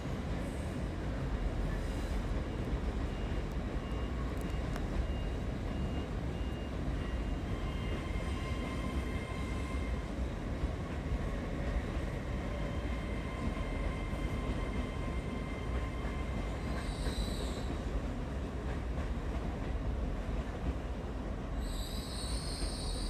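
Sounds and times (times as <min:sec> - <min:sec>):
train wheels rumbling on rails: 0:00.0 - 0:23.0
steel wheel squeal: 0:21.6 - 0:23.0.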